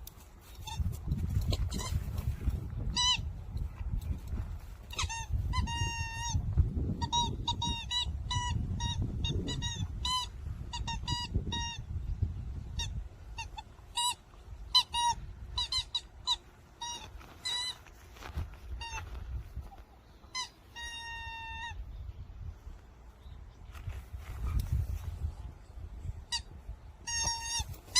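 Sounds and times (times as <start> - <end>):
squeaky toy ball squeaking: 0.5 - 3.4, 4.9 - 11.9, 12.8 - 17.8, 18.8 - 19.0, 20.3 - 21.8, 26.3 - 27.9.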